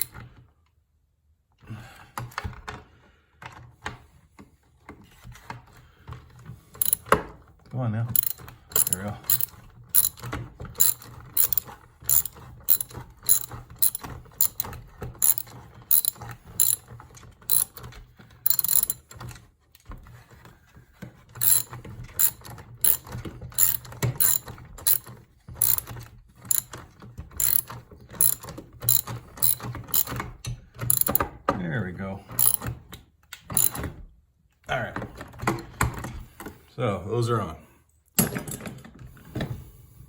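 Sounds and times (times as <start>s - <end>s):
ratchet wrench clicking: 6.8s - 7.0s, 8.2s - 16.9s, 17.5s - 17.9s, 18.5s - 19.2s, 21.4s - 26.7s, 27.4s - 30.2s, 30.9s - 31.2s, 32.4s - 32.7s, 33.6s - 33.8s.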